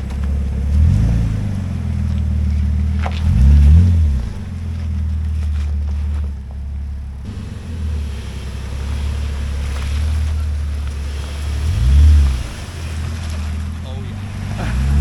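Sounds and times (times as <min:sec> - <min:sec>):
road and wind noise: 0:00.0 - 0:15.0
truck engine droning: 0:00.0 - 0:15.0.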